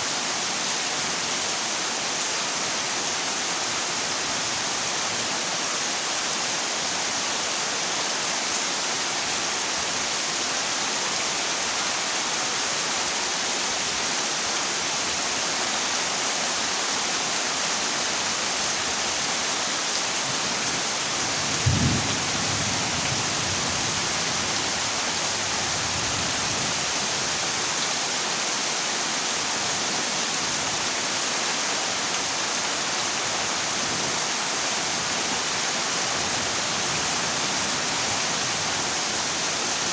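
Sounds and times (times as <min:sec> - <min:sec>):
heavy rain on a metal roof: 0:00.0 - 0:39.9
thunderclap and rumble: 0:21.6 - 0:23.1.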